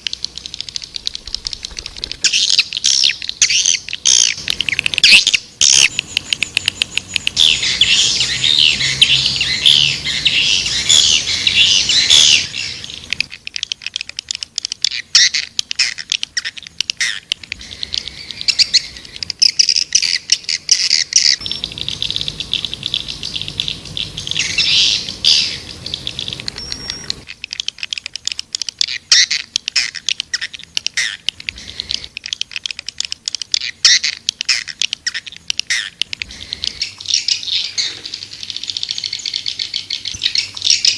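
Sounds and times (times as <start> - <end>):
swiftlets chirping: 0.0 - 40.9.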